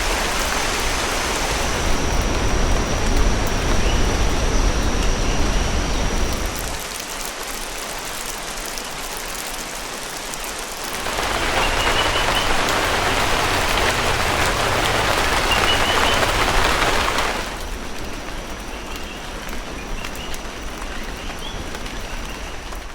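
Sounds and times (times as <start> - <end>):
steady rain falling: 0.0 - 22.9.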